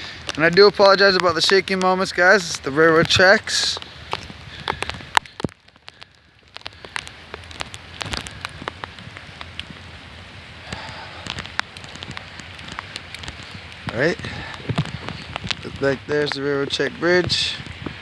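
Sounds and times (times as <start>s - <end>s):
raindrops clicking near microphone: 0.0s - 18.0s
steady rain: 0.0s - 18.0s.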